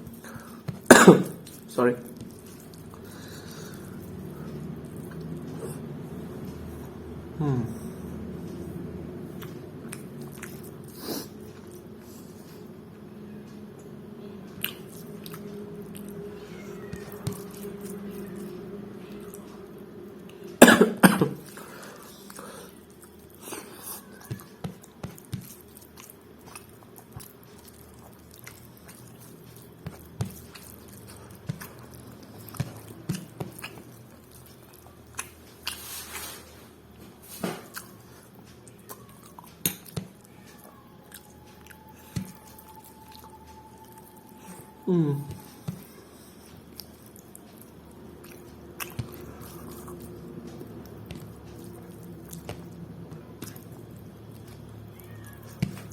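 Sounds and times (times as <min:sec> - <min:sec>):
person chewing: 0:00.0 - 0:08.6, 0:09.2 - 0:12.9, 0:13.7 - 0:20.6, 0:21.2 - 0:55.9
low steady hum: 0:00.0 - 0:55.9
person coughing: 0:00.9 - 0:01.4, 0:20.6 - 0:21.4.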